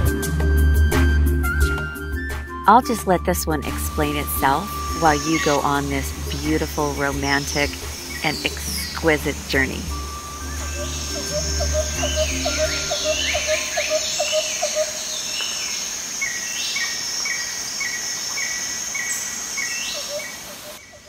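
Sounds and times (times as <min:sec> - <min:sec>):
low drone: 0:02.8 - 0:15.0
insect trill: 0:03.7 - 0:21.0
bird whistles: 0:09.9 - 0:15.2.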